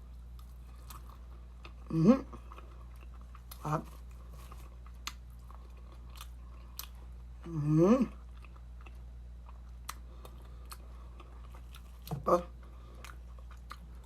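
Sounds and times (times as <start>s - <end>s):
person chewing food: 0.0s - 14.0s
person humming: 1.9s - 2.4s, 7.4s - 8.2s.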